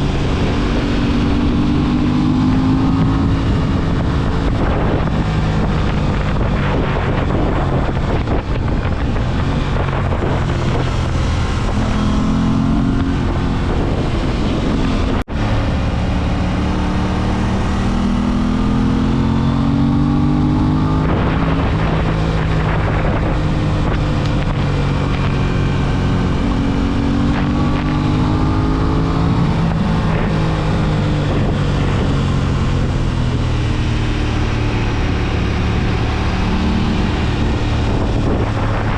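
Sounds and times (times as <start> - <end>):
motorcycle engine accelerating: 0.0 - 38.9
wind buffeting microphone: 0.0 - 38.9.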